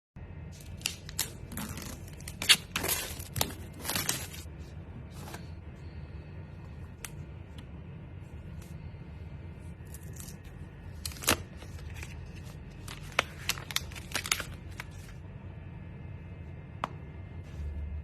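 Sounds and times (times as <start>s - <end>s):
low steady hum: 0.2s - 18.0s
packaging rustling and tearing: 0.6s - 4.5s, 9.9s - 15.2s.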